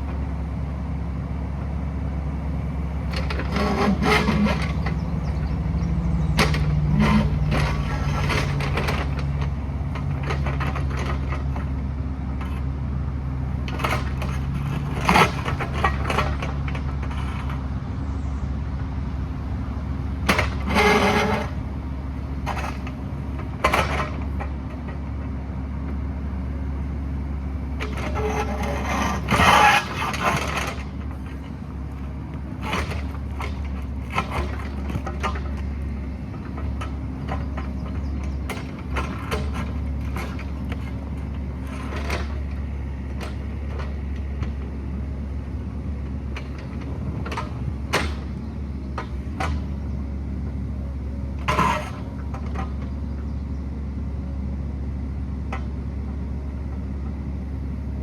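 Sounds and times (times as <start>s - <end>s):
diesel engine running under load: 0.0s - 58.0s
bucket scraping and cracking rock: 27.8s - 35.6s.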